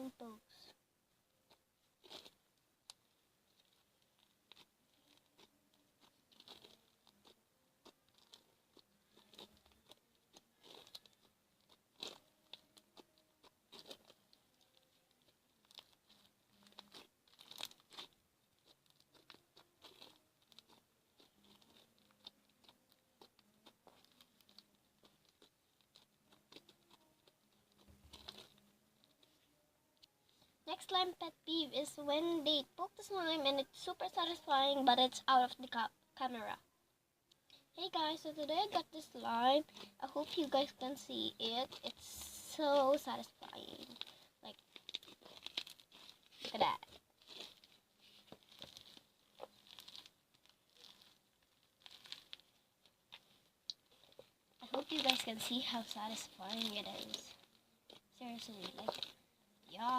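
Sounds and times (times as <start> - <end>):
fingers squishing slime: 1.5 - 28.6, 39.6 - 59.9.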